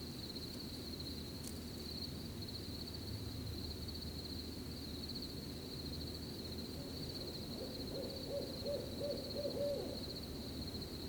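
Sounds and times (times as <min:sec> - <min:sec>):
crickets chirping: 0:00.0 - 0:11.0
wind and rustling: 0:00.0 - 0:11.0
owl hooting: 0:06.8 - 0:10.2.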